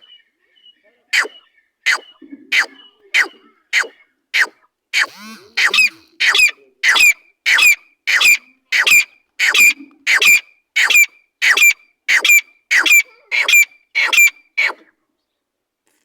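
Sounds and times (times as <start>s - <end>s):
francolin calling: 5.0s - 14.3s.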